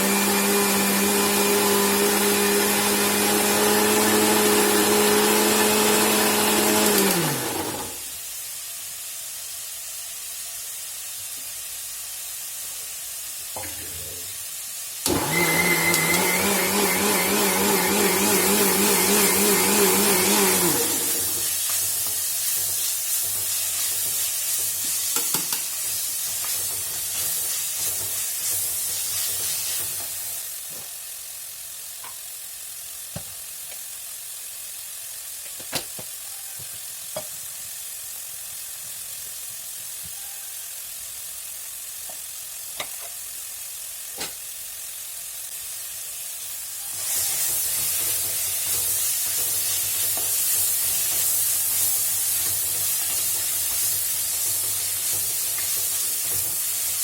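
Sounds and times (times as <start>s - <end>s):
mixer grinder whirring: 0.0s - 8.2s, 15.0s - 22.1s
masala sizzling in oil: 0.0s - 57.0s.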